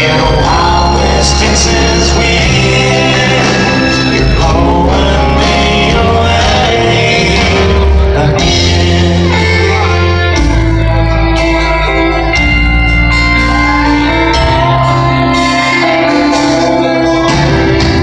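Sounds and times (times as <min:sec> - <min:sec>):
man singing lead vocal: 0:00.0 - 0:12.4
live country band playing: 0:00.0 - 0:18.0.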